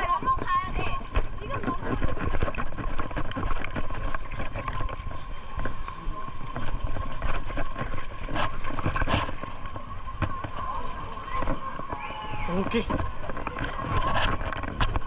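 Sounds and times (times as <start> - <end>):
water splashing and churning: 0.0 - 15.0.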